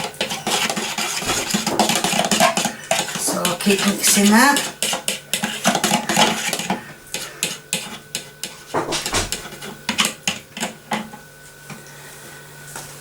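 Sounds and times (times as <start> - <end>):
utensil clinking against bowl: 0.0 - 8.5.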